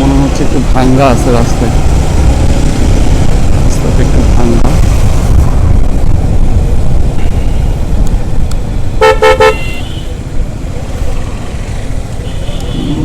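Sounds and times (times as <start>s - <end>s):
motorcycle rumbling: 0.0s - 13.0s
vehicle horn beeps: 9.0s - 10.1s, 12.2s - 13.0s.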